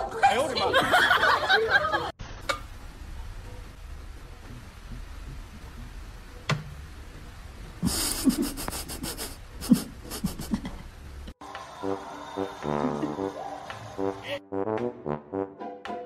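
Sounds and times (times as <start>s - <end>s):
low steady hum: 0.0s - 11.4s
person laughing breathily: 7.8s - 10.8s.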